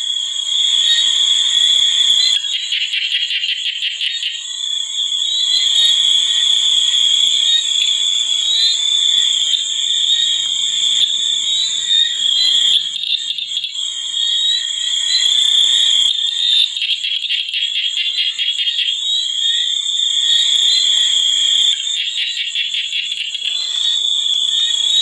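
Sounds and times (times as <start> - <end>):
high-pitched insect trill: 0.0 - 25.0
rapid pulsing frog call: 0.0 - 25.0.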